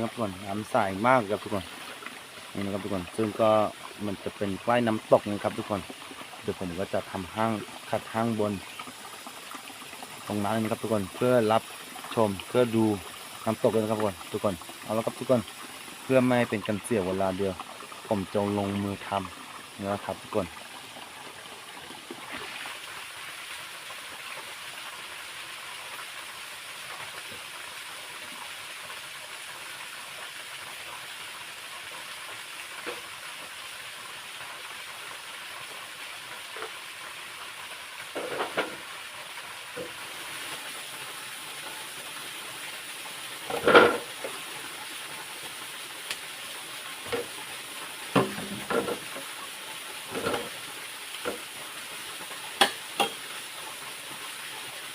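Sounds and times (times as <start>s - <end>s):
waterfall and stream rushing: 0.0s - 24.1s, 38.1s - 54.9s
short knocks and thumps: 38.2s - 38.8s, 48.2s - 49.2s, 50.2s - 50.6s.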